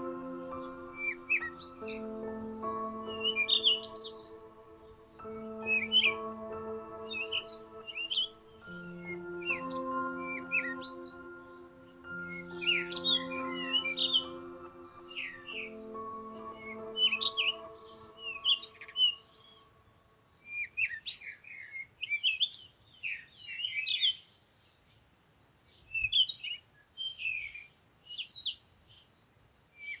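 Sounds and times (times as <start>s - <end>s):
songbird chirping and whistling: 0.0s - 19.6s
soft sustained music: 0.0s - 20.6s.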